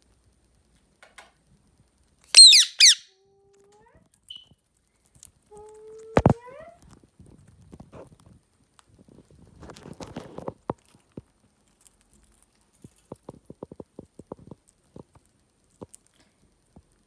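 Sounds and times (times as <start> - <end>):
parrot beak crunching peanut: 8.0 - 16.5.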